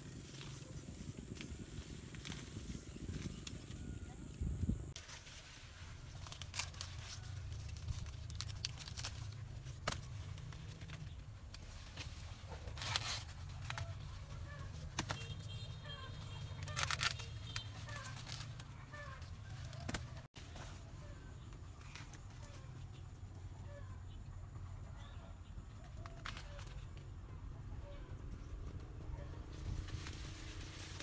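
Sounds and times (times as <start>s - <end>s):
rustling and tearing: 4.9s - 20.8s, 29.5s - 31.0s.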